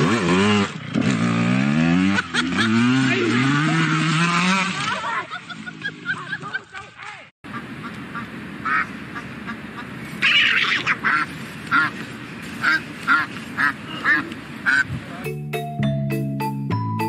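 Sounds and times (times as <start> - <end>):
duck quacking: 7.5 - 12.0, 12.6 - 14.9.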